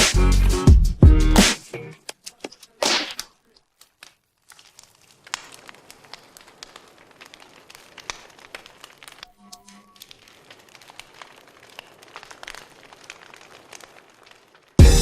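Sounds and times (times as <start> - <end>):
loud music: 0.0 - 1.7, 14.8 - 15.0
clicks: 2.0 - 14.6
faint crackling with clicks: 2.0 - 14.8.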